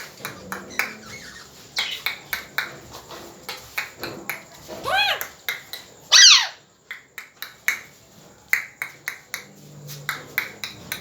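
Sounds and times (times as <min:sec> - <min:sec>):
parrot call: 0:00.3 - 0:02.2, 0:04.8 - 0:05.3, 0:06.1 - 0:06.7.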